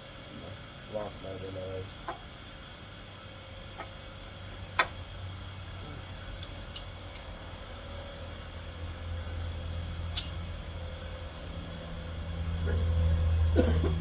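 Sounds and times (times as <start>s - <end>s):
steady low hum: 0.0s - 14.0s
metallic clicks from hand tools: 6.4s - 7.3s.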